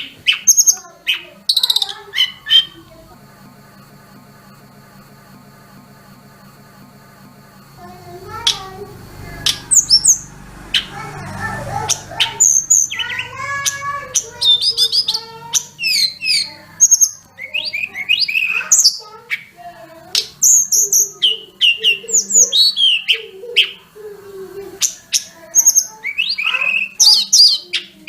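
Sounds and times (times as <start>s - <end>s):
songbird whistling and trilling: 0.0s - 2.8s, 11.8s - 19.6s, 20.2s - 23.8s, 24.8s - 28.0s.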